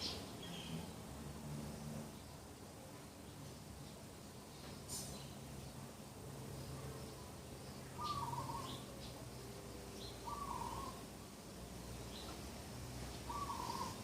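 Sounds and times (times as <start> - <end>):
faint bird chirps: 6.6 - 9.2, 10.0 - 11.0, 13.1 - 14.0.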